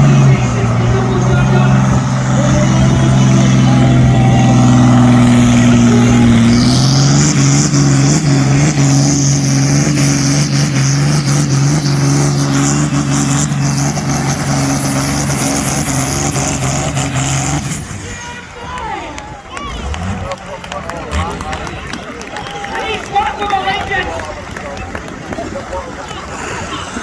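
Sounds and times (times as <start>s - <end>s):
engine running hard at high revs: 0.0s - 18.0s, 19.6s - 21.8s.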